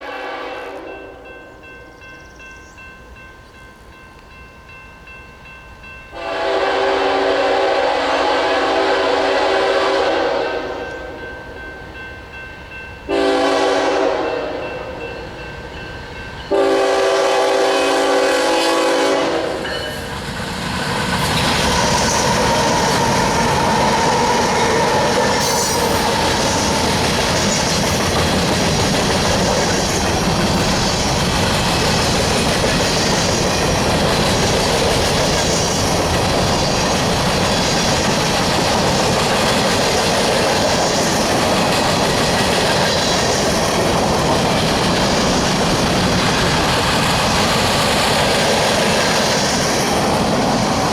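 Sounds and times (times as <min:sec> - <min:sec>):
train horn chord: 0:00.0 - 0:01.6, 0:06.1 - 0:11.3, 0:13.1 - 0:15.0, 0:16.5 - 0:19.9
train wheels clattering on rails: 0:19.6 - 0:50.9.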